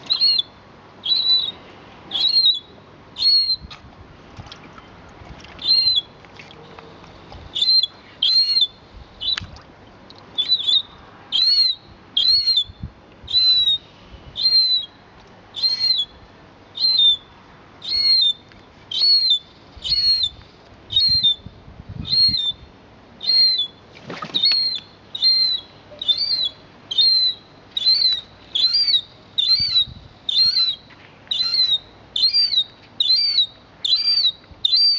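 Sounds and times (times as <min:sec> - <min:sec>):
seagull calling: 0:07.6 - 0:09.4, 0:15.6 - 0:16.1, 0:17.8 - 0:20.3, 0:24.4 - 0:34.9.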